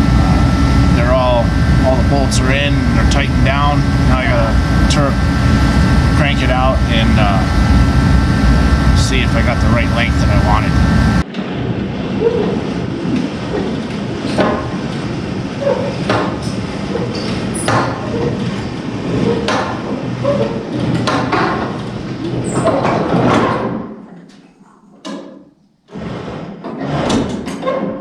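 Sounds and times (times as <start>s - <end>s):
tarp cranking rumble: 0.0s - 11.2s.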